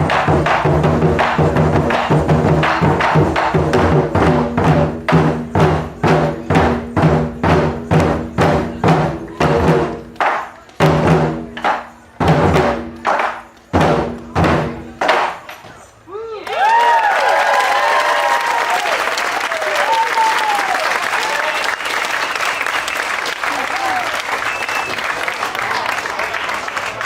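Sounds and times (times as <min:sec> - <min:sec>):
voices cheering: 0:16.1 - 0:27.0.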